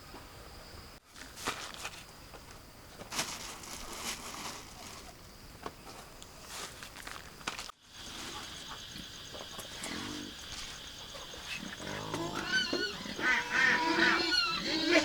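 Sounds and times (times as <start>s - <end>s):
ducks quacking: 11.1s - 15.0s.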